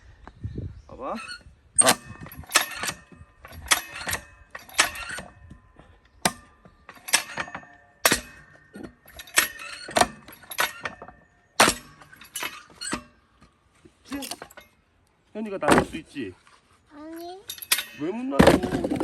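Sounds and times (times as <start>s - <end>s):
splitting tool striking firewood: 6.2s - 13.2s.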